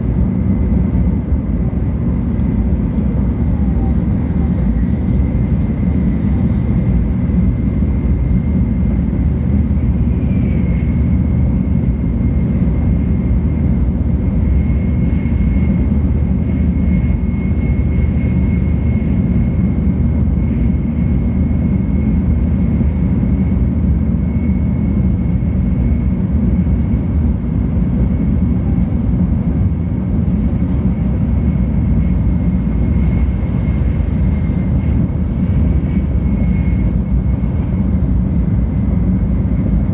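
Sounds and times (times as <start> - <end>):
train cabin rumble: 0.0 - 21.4
faint high whine: 0.0 - 39.9.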